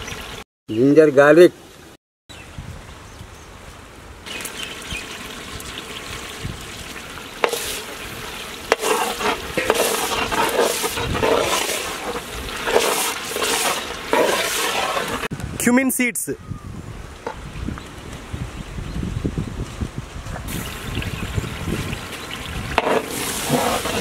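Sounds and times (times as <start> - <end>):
masala sizzling in hot oil: 4.3 - 15.3, 20.5 - 24.0
metal spatula stirring and scraping: 7.4 - 8.0, 8.7 - 15.3, 22.8 - 24.0.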